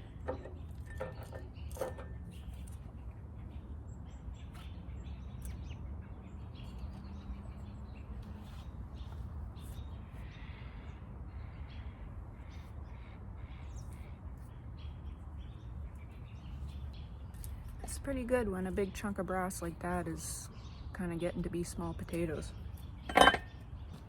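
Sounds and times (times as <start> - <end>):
light clicks and clinks: 23.1 - 23.5.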